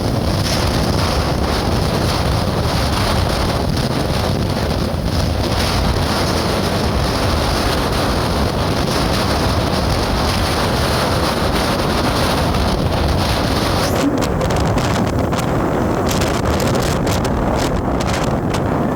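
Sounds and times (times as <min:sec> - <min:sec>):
wind buffeting microphone: 0:00.0 - 0:18.9
moving vehicle noise: 0:12.1 - 0:18.7.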